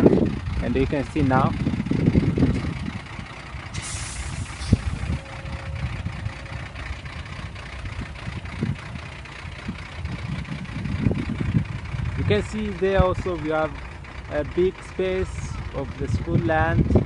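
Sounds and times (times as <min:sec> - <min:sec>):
truck engine running low: 0:00.0 - 0:17.0
air brakes hissing: 0:03.7 - 0:05.2.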